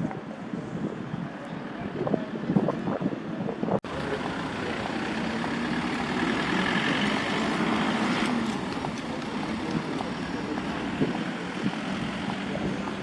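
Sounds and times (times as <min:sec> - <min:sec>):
road noise: 0:00.0 - 0:13.0
vehicle engine passing: 0:03.8 - 0:13.0.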